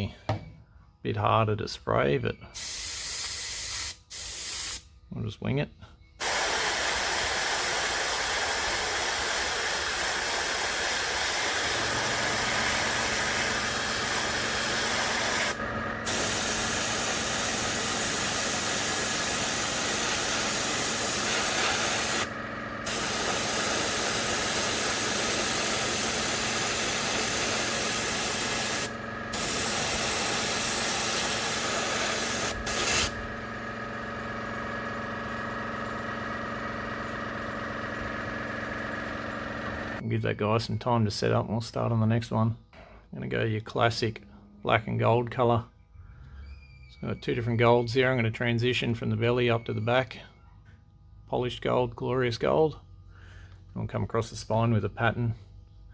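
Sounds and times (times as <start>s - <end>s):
airbrush spraying hiss: 2.6s - 4.8s, 6.2s - 33.2s
motor hum: 6.0s - 40.0s.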